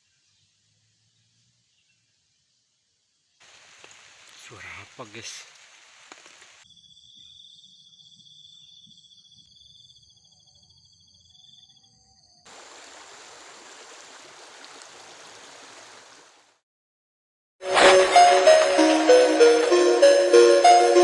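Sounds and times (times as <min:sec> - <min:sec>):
heavy rain hissing: 0:03.4 - 0:06.6, 0:12.5 - 0:16.6.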